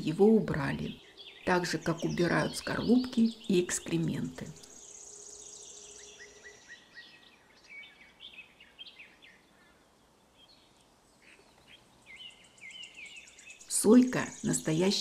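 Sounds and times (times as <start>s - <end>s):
birds chirping and whistling: 0.4s - 9.5s, 10.4s - 15.0s.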